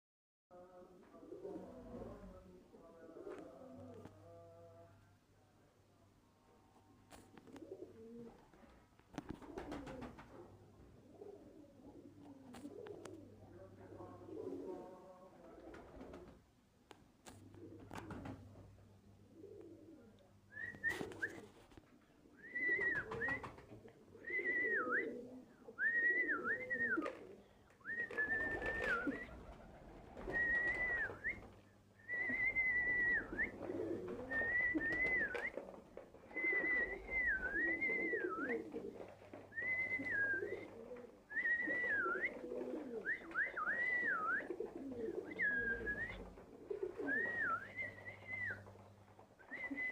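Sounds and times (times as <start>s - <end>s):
birds cooing murmur: 7.4s - 8.4s, 9.3s - 15.2s, 19.2s - 21.5s, 22.2s - 49.9s.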